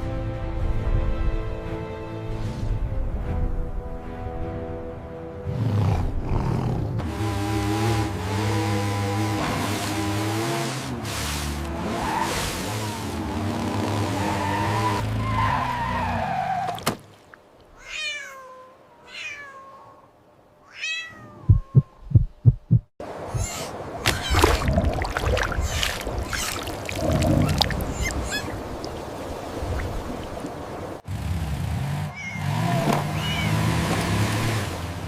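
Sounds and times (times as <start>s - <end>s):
cat meowing: 17.8s - 22.0s, 23.3s - 24.6s, 27.8s - 28.6s, 32.1s - 32.5s, 33.1s - 33.6s
low thumps: 21.5s - 22.9s.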